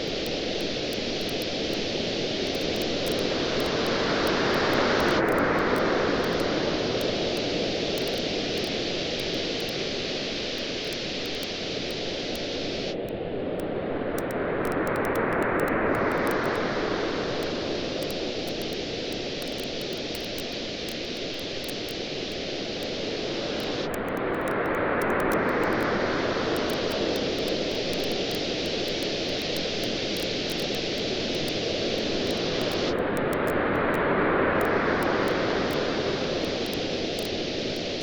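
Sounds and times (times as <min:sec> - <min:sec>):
sea waves washing onto beach: 0:00.0 - 0:12.9, 0:14.8 - 0:38.0
campfire crackling: 0:00.0 - 0:13.0, 0:17.4 - 0:24.3, 0:26.6 - 0:33.5.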